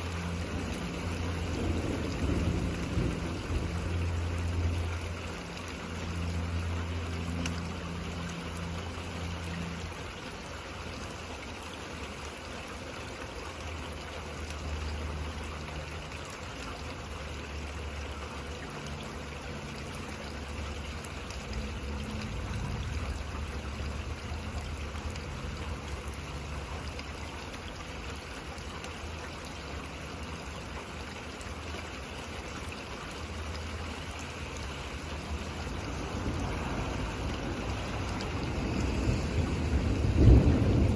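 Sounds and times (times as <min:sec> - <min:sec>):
steady rain: 0:00.0 - 0:40.9
distant thunder rumbling: 0:00.4 - 0:04.8, 0:36.0 - 0:40.9.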